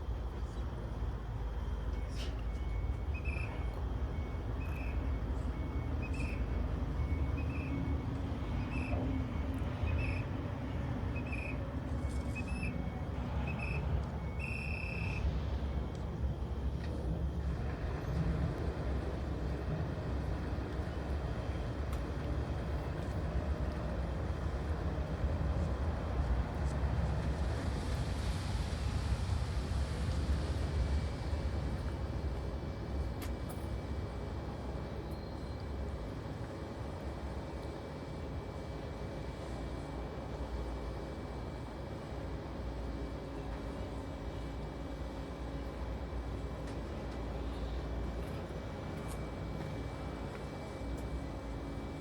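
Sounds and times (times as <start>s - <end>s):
diesel engine running: 0.0s - 52.0s
reversing alarm beeping: 1.9s - 15.6s.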